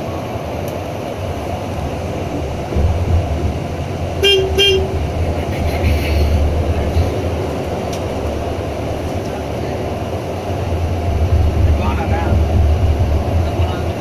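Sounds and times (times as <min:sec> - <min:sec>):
bus running on road: 0:00.0 - 0:14.0
horn toots: 0:04.2 - 0:05.2.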